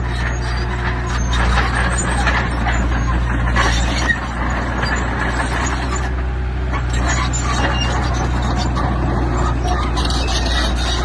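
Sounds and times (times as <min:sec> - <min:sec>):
diesel machinery running: 0:00.0 - 0:11.0.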